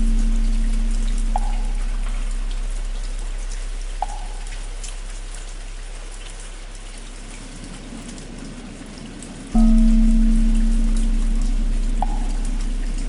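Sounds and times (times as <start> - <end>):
deep bell hum: 0.0 - 5.3, 9.6 - 13.0
rain drop ticks: 0.0 - 13.0
steady rain falling: 0.0 - 13.0.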